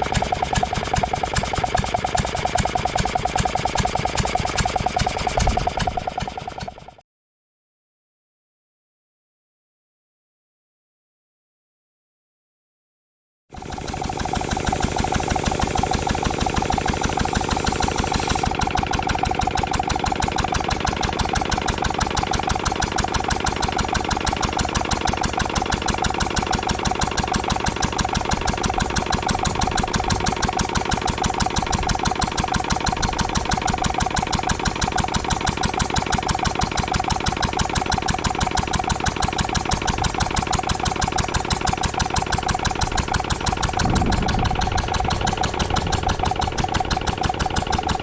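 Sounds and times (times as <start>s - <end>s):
air compressor engine running: 0.0s - 7.0s, 13.5s - 48.0s.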